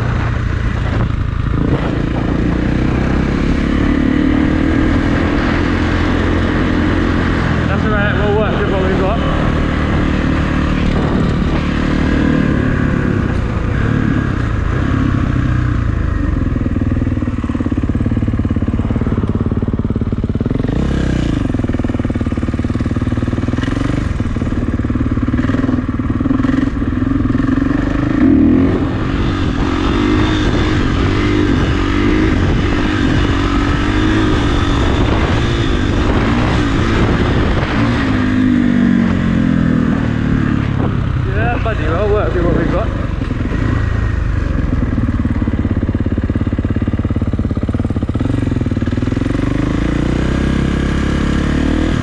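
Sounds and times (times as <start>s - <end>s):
dirt bike engine running: 0.0s - 52.0s.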